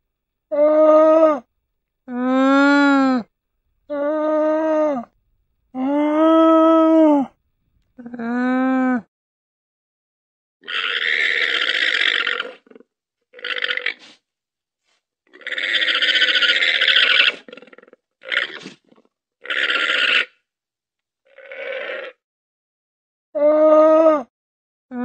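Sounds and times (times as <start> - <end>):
llama calling: 15.3 - 17.6.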